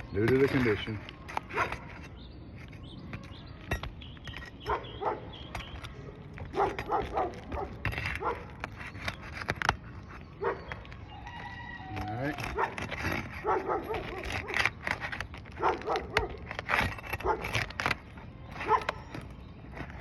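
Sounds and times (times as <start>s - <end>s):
shingles being pried loose: 0.0s - 20.0s
dog barking: 4.7s - 5.3s, 6.5s - 8.5s, 10.4s - 10.7s, 12.5s - 12.8s, 13.4s - 14.6s, 15.6s - 16.4s, 17.2s - 17.6s, 18.6s - 19.0s.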